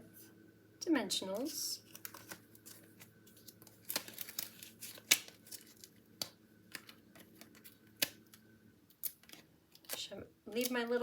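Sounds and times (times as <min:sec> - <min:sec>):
paper rustling: 0:01.9 - 0:06.0.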